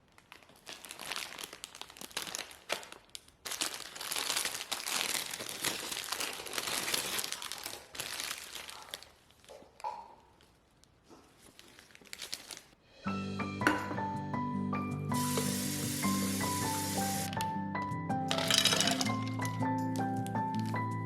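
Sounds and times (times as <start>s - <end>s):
packaging crinkling: 0.0s - 9.5s, 10.3s - 12.8s.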